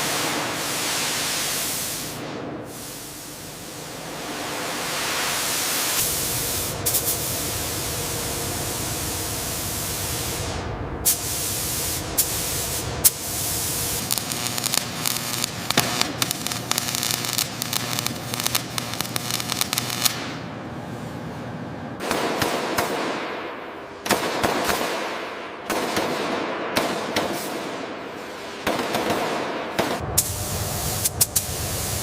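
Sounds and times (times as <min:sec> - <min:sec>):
loud spraying hiss: 0:00.0 - 0:20.3, 0:30.2 - 0:32.0.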